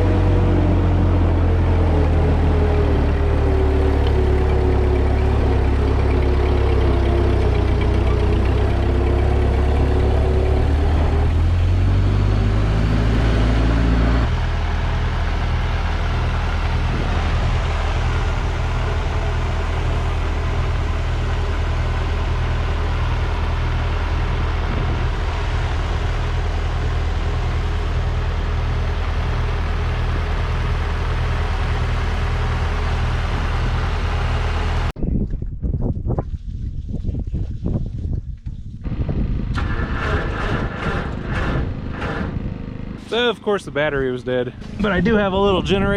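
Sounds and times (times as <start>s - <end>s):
tractor engine running: 0.0s - 35.0s, 38.8s - 45.9s.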